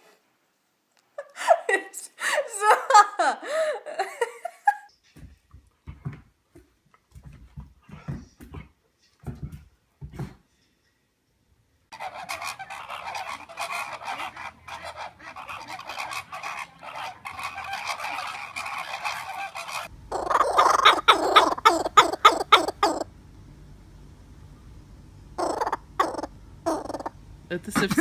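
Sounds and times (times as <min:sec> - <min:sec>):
bird honking and squawking: 0:11.9 - 0:23.1, 0:25.4 - 0:27.1.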